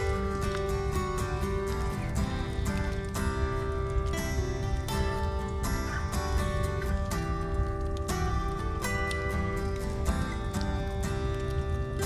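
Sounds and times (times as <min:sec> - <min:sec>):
slow acoustic guitar music: 0:00.0 - 0:12.0
wood fire crackling: 0:00.0 - 0:12.0.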